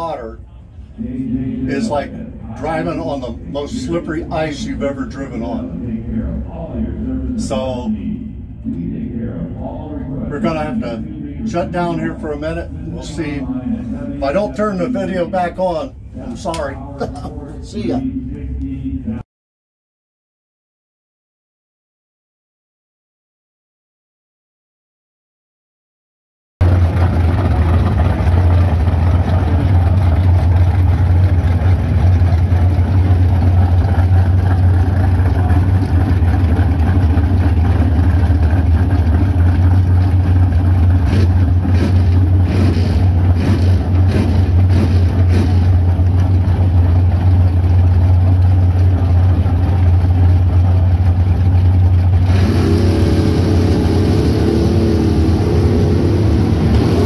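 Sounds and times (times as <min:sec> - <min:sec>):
engine idling with low rumble: 0:00.0 - 0:19.2, 0:26.6 - 0:57.0
higher engine note: 0:26.6 - 0:57.0.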